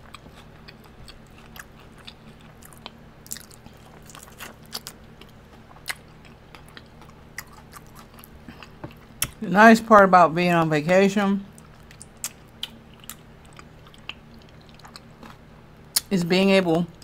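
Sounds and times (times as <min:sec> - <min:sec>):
chewing crispy fried wings: 0:00.0 - 0:10.0, 0:10.6 - 0:17.0.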